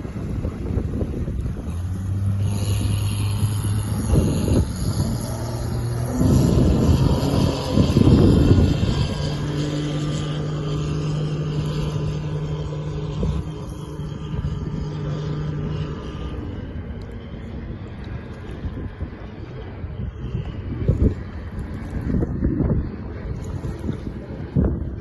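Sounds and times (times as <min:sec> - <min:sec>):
outboard motor running: 0:00.0 - 0:25.0.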